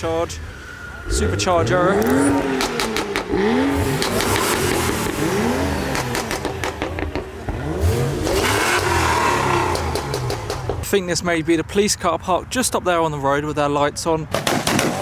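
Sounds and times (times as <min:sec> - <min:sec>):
car engine revving: 0:00.0 - 0:10.9
exhaust cracks: 0:00.0 - 0:11.2.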